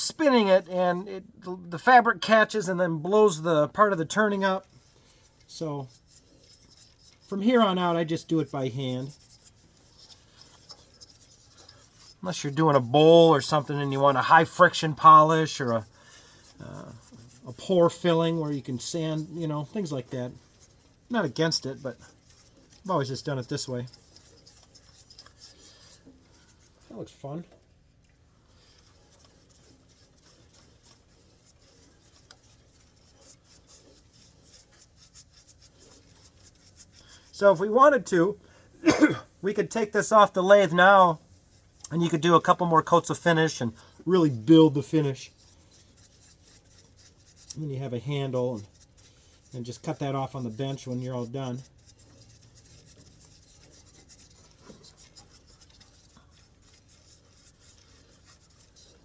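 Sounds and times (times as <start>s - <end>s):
rag rubbing on wood: 1.8s - 27.5s, 28.4s - 59.0s.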